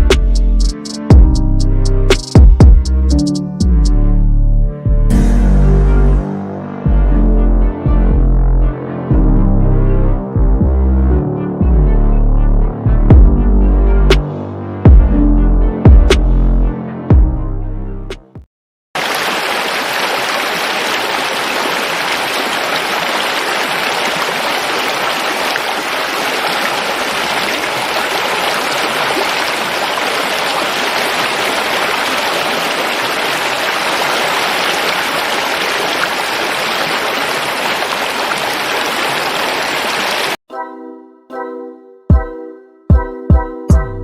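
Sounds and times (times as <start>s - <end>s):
stream water rushing: 19.0s - 40.4s.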